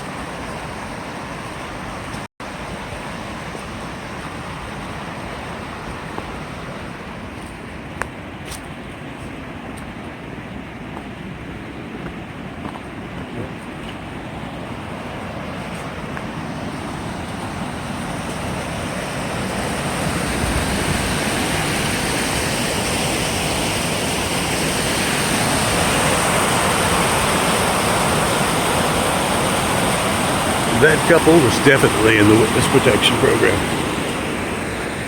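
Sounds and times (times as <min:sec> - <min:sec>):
waterfall roaring: 0:14.6 - 0:35.0.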